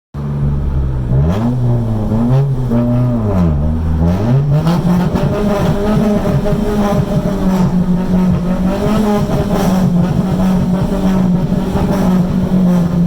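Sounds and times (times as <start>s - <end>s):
car exhaust revving rhythmically: 0.2s - 13.0s.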